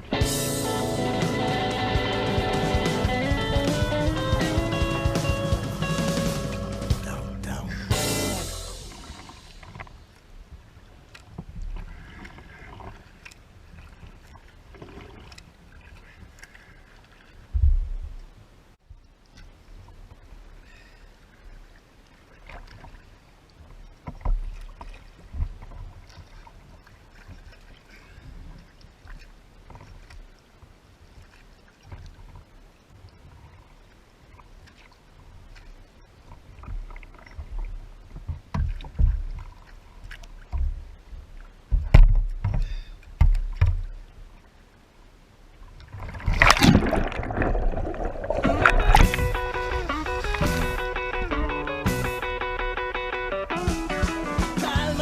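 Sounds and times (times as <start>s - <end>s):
rock music with guitar: 0.0s - 9.2s, 48.5s - 55.0s
low thumps: 0.0s - 9.9s, 40.5s - 42.6s, 46.2s - 55.0s
paddle strokes: 0.0s - 55.0s
water splashing: 0.0s - 55.0s
knocks against hull: 37.4s - 39.5s, 40.4s - 44.0s.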